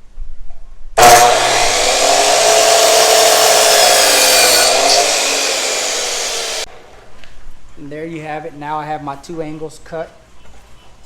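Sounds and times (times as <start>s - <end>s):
power saw cutting wood: 1.0s - 6.7s.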